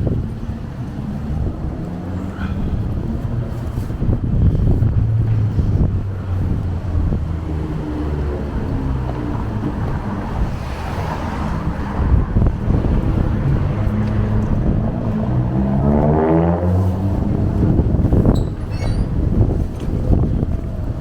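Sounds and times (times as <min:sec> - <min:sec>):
vehicle engines running: 0:00.0 - 0:21.0
engine revving up: 0:13.0 - 0:17.8.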